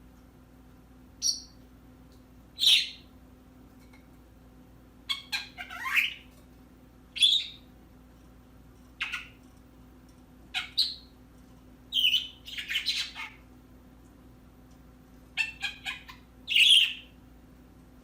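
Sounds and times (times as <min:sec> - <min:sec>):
bird chirps and squawks: 0:02.6 - 0:03.0, 0:05.1 - 0:06.3, 0:07.2 - 0:07.6, 0:09.0 - 0:09.4, 0:10.5 - 0:11.1, 0:11.9 - 0:13.5, 0:15.4 - 0:17.1.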